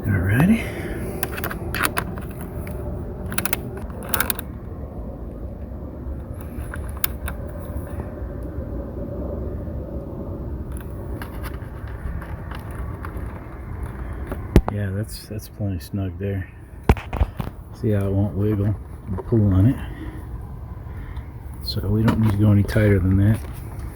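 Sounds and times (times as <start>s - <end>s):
low background rumble: 0.0s - 23.9s
wrench clicking on metal: 1.2s - 4.4s.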